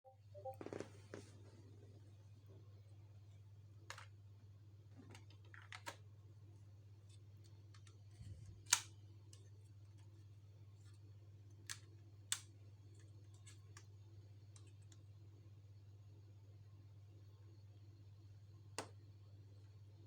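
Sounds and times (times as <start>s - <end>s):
low steady hum: 0.1s - 20.0s
sharp plastic clicks: 8.6s - 9.4s.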